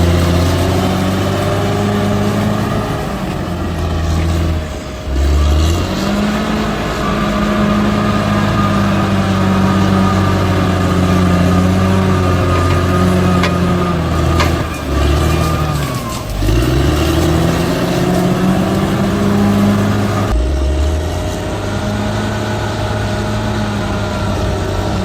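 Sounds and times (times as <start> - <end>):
sharp metallic clanks: 0.0 - 21.7
diesel engine under load: 0.0 - 25.0.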